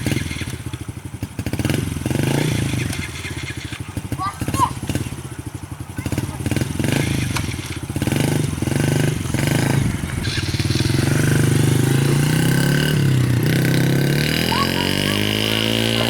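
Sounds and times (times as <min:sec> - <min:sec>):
small motorcycle engine revving: 0:00.0 - 0:16.0.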